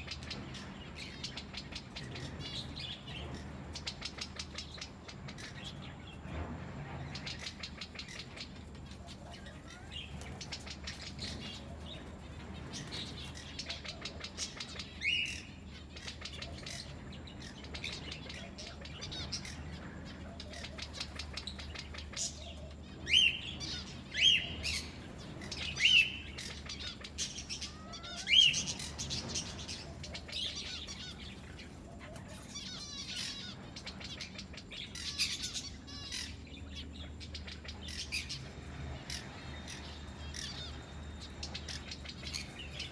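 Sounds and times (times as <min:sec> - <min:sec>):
birds chirping and chattering: 0:00.0 - 0:42.9
loud sharp bird calls: 0:00.0 - 0:42.9.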